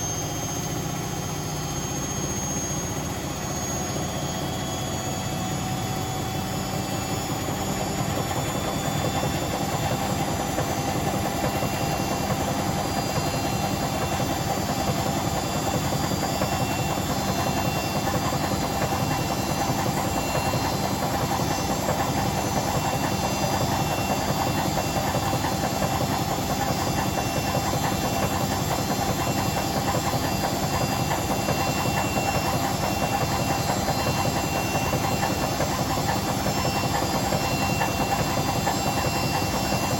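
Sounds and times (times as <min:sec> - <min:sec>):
washing machine drum spinning: 0:07.8 - 0:39.9.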